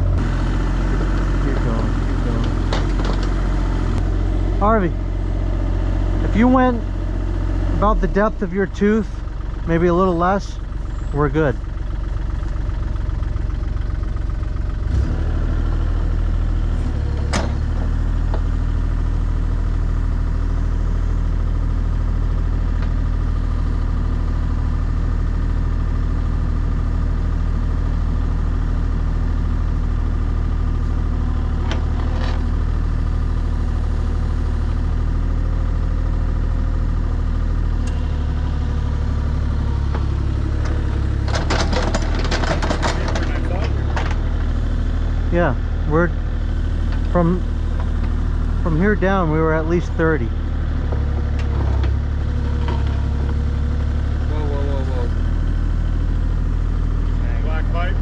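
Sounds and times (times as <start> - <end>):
rattling and clanking: 0.0 - 6.8, 31.2 - 32.7, 39.6 - 45.0, 50.7 - 54.4
excavator diesel engine running: 0.0 - 58.0
bucket clanking: 41.3 - 44.2.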